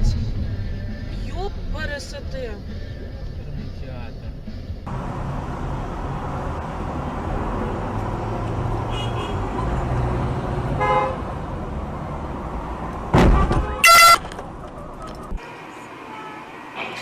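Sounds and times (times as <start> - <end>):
car road noise: 0.0 - 17.0
car horn beeps: 8.9 - 9.4, 10.8 - 11.2, 13.3 - 14.3, 16.1 - 16.5
loud car horn blast: 8.9 - 9.4, 10.8 - 11.2, 13.2 - 14.3.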